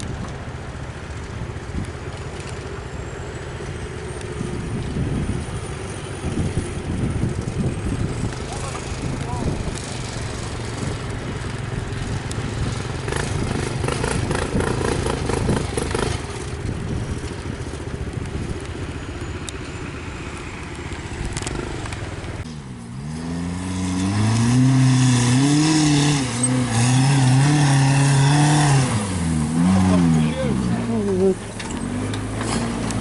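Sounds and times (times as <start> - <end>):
passing vehicle engines: 0.0 - 33.0
nearby engine revving: 21.2 - 33.0.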